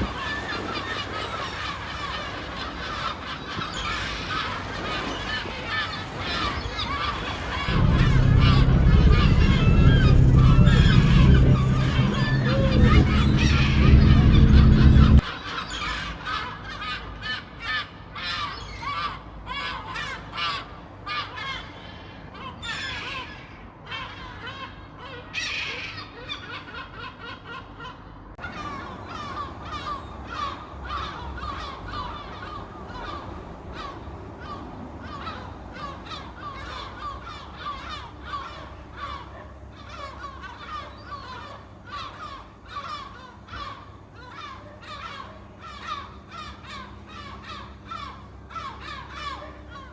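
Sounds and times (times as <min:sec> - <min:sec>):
gulls calling: 0:00.0 - 0:15.3.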